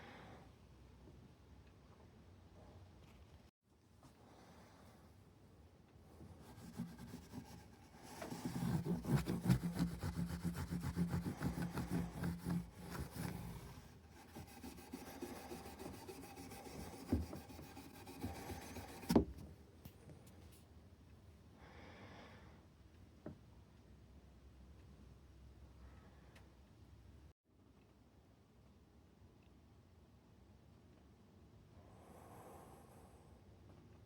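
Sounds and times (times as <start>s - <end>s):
file rubbing on guitar frets: 6.4s - 19.2s.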